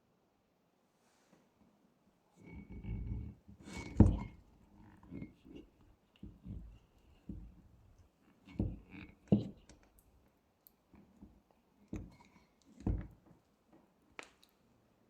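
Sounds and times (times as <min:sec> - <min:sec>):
objects knocking and clicking: 0:02.4 - 0:10.1, 0:11.0 - 0:14.4.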